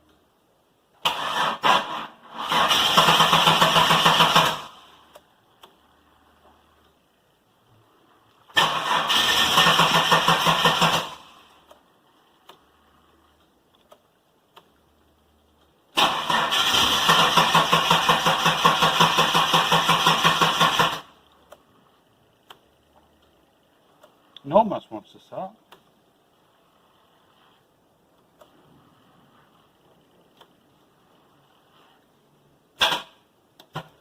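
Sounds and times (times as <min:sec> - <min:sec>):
car engine cranking: 0:01.0 - 0:05.9, 0:08.5 - 0:11.8, 0:15.9 - 0:21.7.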